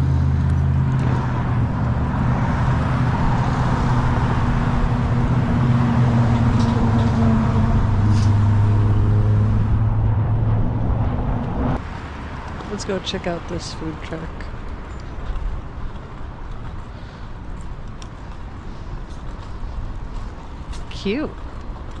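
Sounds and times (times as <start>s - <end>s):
vehicle engine running: 0.0s - 11.8s
wind rumble on microphone: 0.0s - 12.8s.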